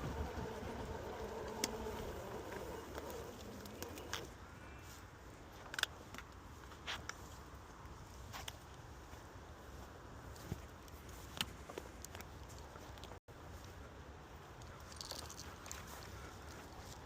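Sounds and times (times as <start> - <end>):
electric skateboard motor whining: 0.0 - 4.3
wheel rumble: 0.0 - 4.3.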